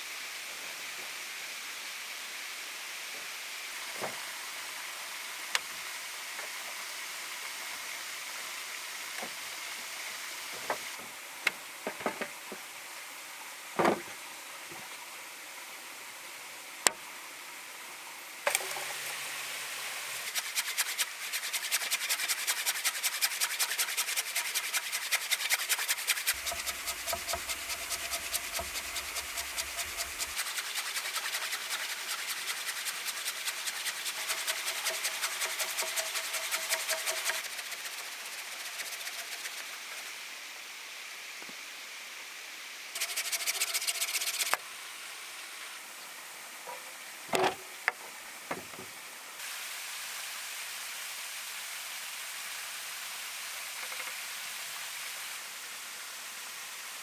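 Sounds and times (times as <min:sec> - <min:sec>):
steady hiss: 0:00.0 - 0:57.0
rapid scraping strokes: 0:20.2 - 0:40.2, 0:43.0 - 0:44.6.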